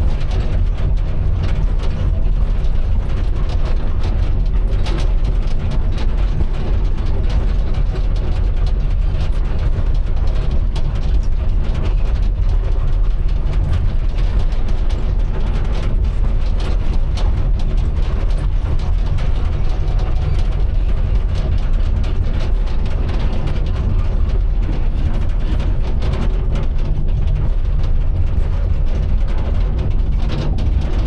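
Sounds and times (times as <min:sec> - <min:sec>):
excavator diesel engine running: 0:00.0 - 0:31.0
metallic clicks and clatter: 0:00.0 - 0:31.0.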